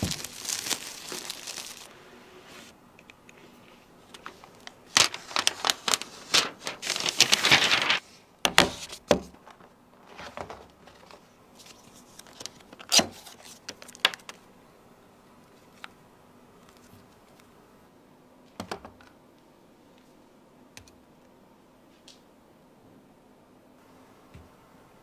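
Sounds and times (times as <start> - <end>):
packaging crinkling and rustling: 0.0 - 2.7, 4.1 - 14.4.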